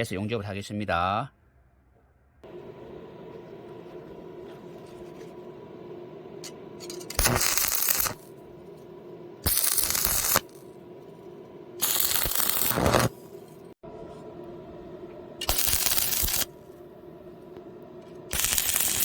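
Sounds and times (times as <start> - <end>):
arc welding crackling and sizzling: 2.4 - 13.8, 15.4 - 19.0.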